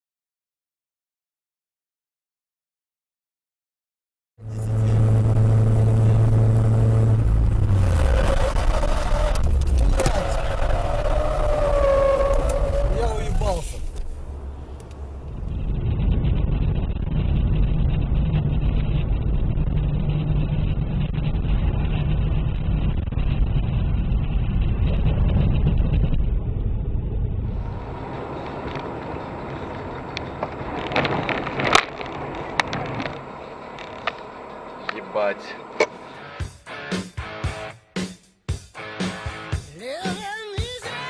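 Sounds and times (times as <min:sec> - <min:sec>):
low hum: 0:04.4 - 0:13.0, 0:13.6 - 0:36.4
car engine and road rumble: 0:04.4 - 0:37.4.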